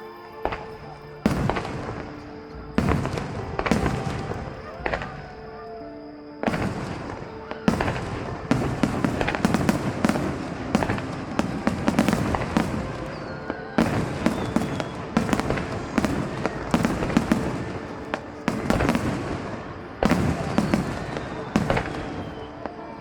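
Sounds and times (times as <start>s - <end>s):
fireworks bursting with echoes: 0.0s - 23.0s.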